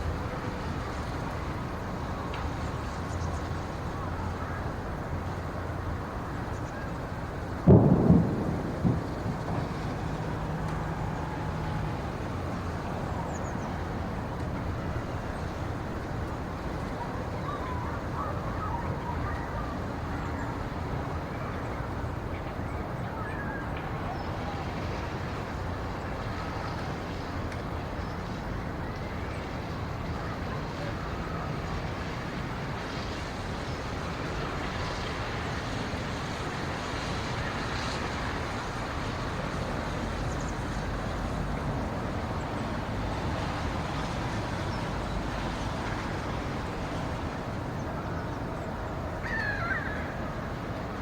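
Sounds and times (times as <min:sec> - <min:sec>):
steady rumbling background noise: 0:00.0 - 0:51.0.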